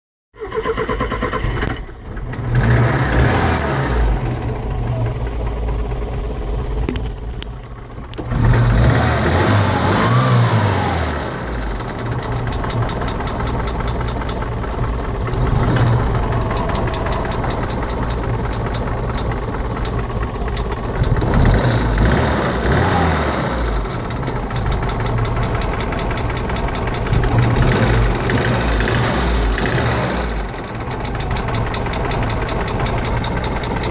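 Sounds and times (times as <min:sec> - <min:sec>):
engine revving and idling with rattle: 0:00.4 - 0:33.9.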